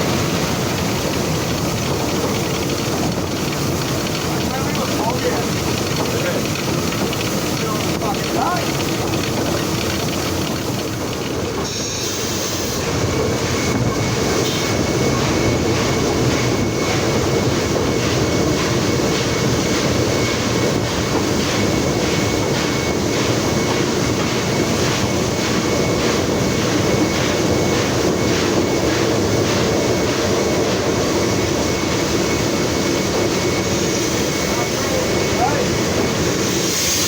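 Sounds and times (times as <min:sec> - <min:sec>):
rumble of train wheels: 0:00.0 - 0:37.0
clicks over rail joints: 0:00.7 - 0:11.3.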